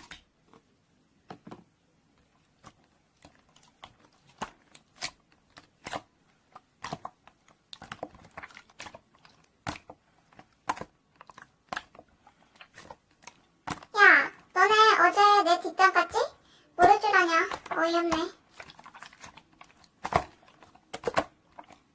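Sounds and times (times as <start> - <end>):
slime squished by hand: 2.2 - 14.5, 16.8 - 21.9.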